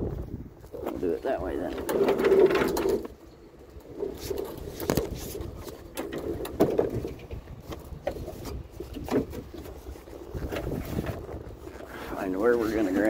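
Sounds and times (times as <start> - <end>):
objects knocking and scraping: 0.7 - 13.0.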